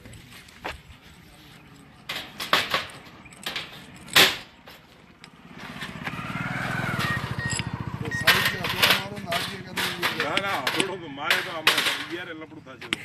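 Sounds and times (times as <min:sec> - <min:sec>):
vehicle engine running: 0:04.8 - 0:10.7.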